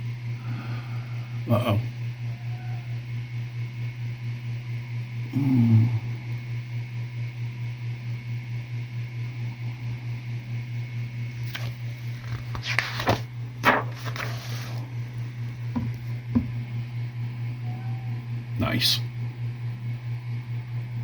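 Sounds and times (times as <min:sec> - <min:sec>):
low room hum: 0:00.0 - 0:21.0
paper pages rustling: 0:11.5 - 0:14.9.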